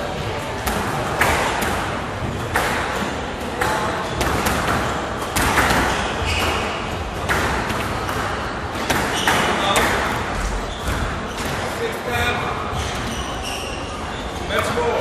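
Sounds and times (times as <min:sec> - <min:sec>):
squash ball knocks: 0:00.6 - 0:11.8.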